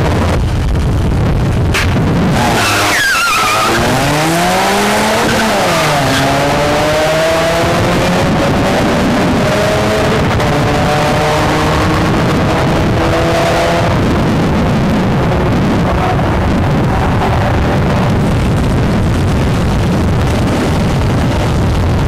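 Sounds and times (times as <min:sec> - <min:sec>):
cars accelerating hard: 0:01.9 - 0:18.3.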